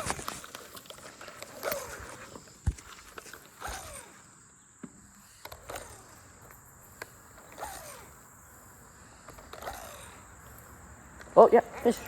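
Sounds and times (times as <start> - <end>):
high insect drone: 0.0 - 12.0
sharp clicks: 5.4 - 8.2.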